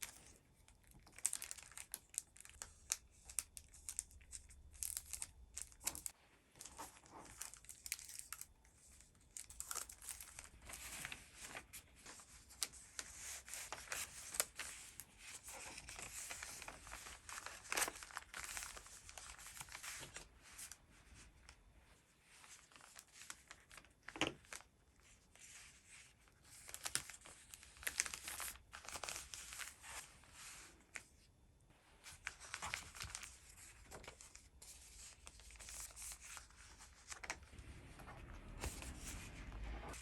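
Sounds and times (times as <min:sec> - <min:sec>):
packaging rustling and crinkling: 0:09.3 - 0:20.7.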